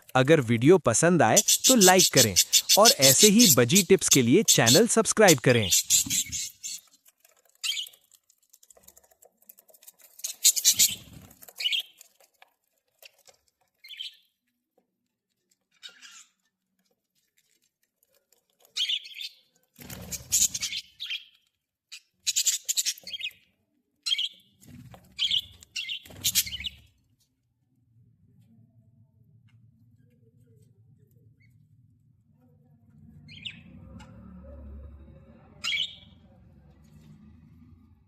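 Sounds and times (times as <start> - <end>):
budgerigars chirping: 1.2 - 6.9, 10.2 - 11.9, 20.1 - 21.3, 22.0 - 23.4, 25.2 - 26.9, 33.3 - 33.6, 35.6 - 36.1.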